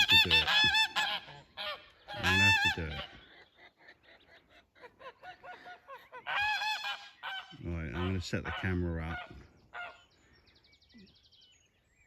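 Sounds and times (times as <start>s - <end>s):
geese honking: 0.0s - 3.5s, 4.6s - 10.1s.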